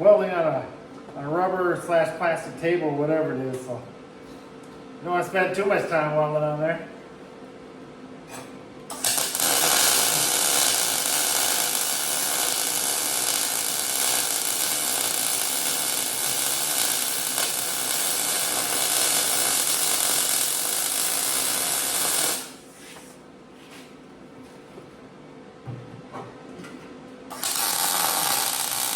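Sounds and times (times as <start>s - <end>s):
electric welder crackling sizzle: 8.9s - 22.7s, 27.3s - 28.9s.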